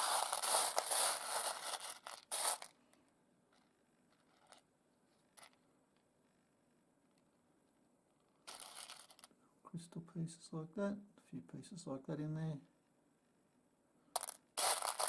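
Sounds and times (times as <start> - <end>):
stones scraping on a surface: 0.0 - 2.7, 14.2 - 15.0.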